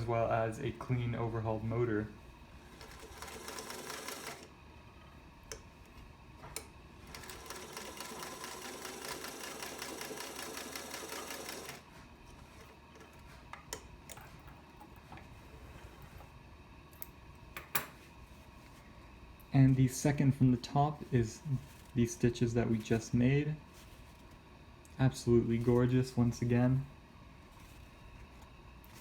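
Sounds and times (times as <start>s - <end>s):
sewing machine stitching: 2.7s - 4.5s, 7.0s - 11.8s.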